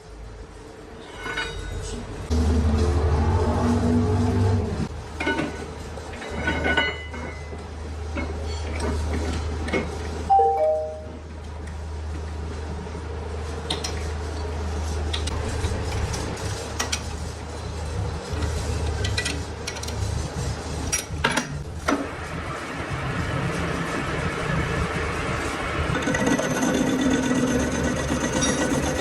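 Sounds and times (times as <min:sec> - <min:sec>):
descending short tones: 0:10.3 - 0:11.3.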